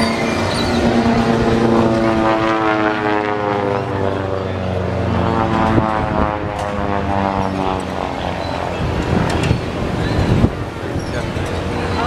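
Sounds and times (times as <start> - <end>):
propeller airplane engine droning: 0.0 - 12.0.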